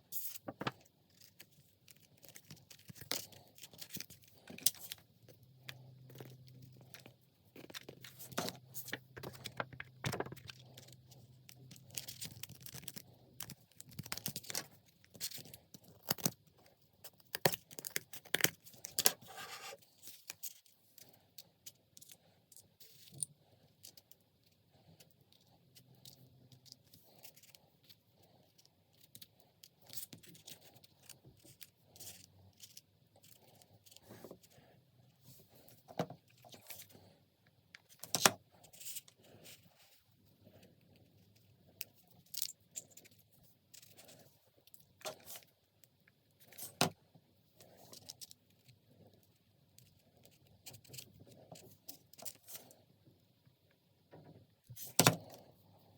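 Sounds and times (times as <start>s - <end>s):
paper crinkling and rustling: 0.2s - 5.0s, 5.7s - 16.5s.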